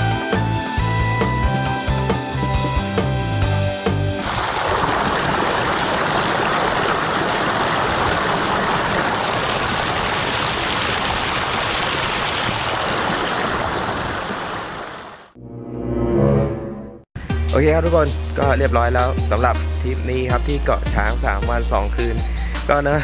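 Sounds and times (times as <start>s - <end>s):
music: 0.0s - 4.2s, 17.2s - 23.0s.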